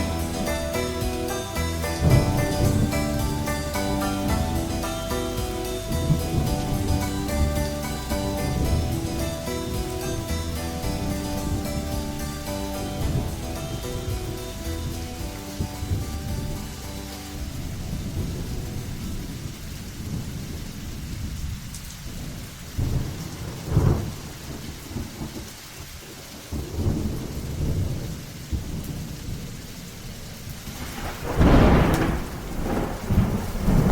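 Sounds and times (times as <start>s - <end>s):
shamisen notes: 0.0s - 19.1s
thunder rumbling: 0.0s - 25.5s, 26.2s - 33.9s
steady rain: 0.0s - 33.9s.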